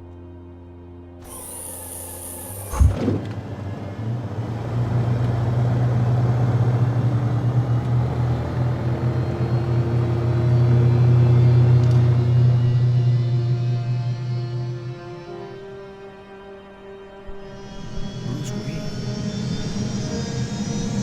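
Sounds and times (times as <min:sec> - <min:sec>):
aircraft engine rumble: 0:02.9 - 0:21.0.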